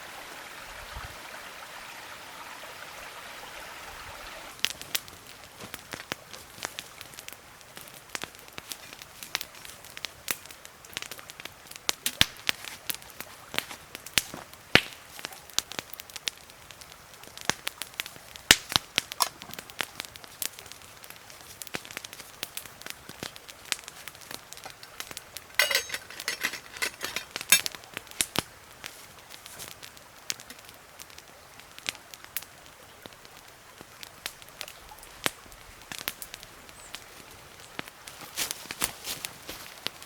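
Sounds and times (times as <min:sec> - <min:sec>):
crackling pops and clicks: 0:04.6 - 0:37.1.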